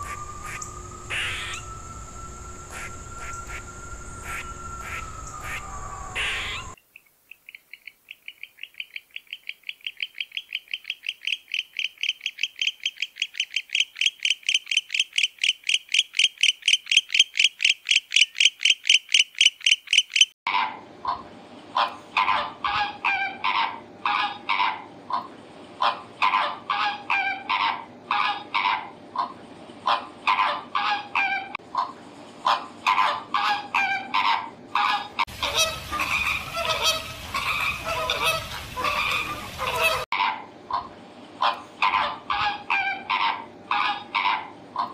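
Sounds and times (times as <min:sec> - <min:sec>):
ducks calling: 0:00.0 - 0:01.7, 0:02.7 - 0:06.8, 0:08.2 - 0:44.9
flamingos honking: 0:00.0 - 0:01.7, 0:02.6 - 0:06.8, 0:20.5 - 0:44.9
owl hooting: 0:00.0 - 0:06.8.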